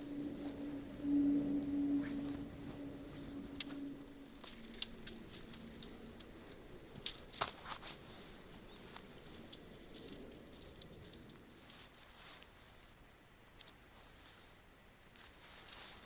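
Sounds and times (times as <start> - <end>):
low ringing tone: 0.0 - 6.5
light clicks and ticks: 3.3 - 8.0, 8.6 - 12.9, 13.6 - 13.8.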